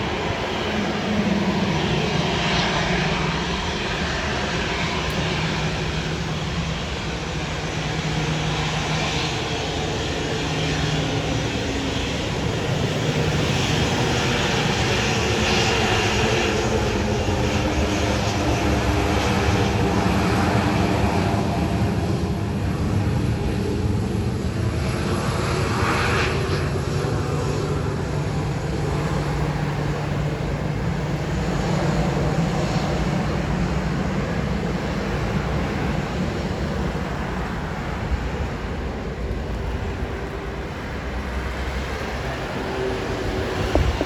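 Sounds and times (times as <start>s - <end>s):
jet engines rumbling: 0.0s - 44.0s.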